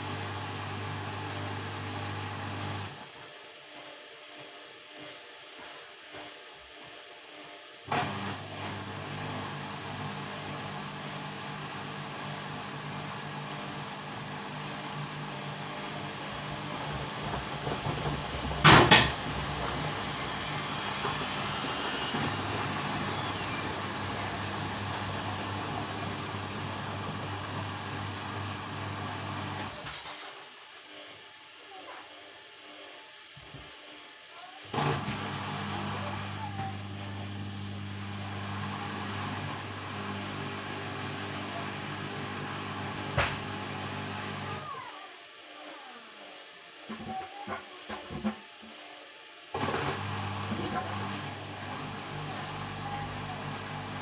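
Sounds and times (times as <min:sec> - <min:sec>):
washing machine motor hum: 0:00.0 - 0:03.0, 0:07.9 - 0:29.9, 0:34.7 - 0:44.7, 0:49.6 - 0:54.0.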